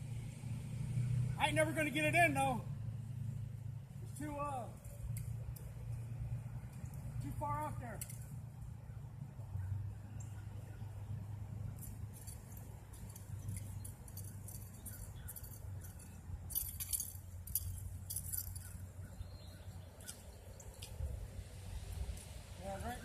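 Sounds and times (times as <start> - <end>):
low steady rumble: 0.0 - 23.0
light metallic clicking and clinking: 7.9 - 8.5, 11.6 - 21.0.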